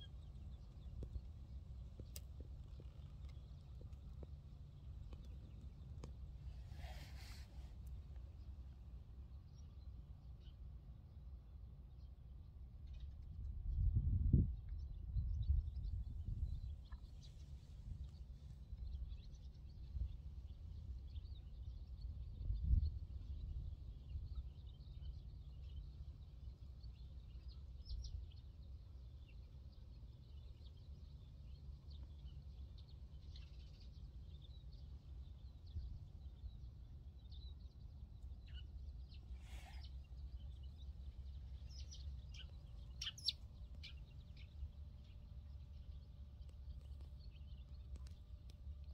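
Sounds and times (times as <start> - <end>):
steady low rumble: 0.0 - 48.9
short bird chirps: 39.4 - 40.0.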